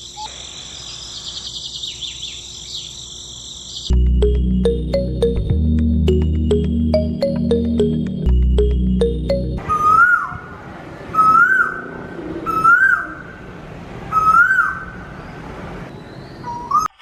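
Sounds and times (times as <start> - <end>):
rising whistled call: 9.6 - 10.5, 11.1 - 11.9.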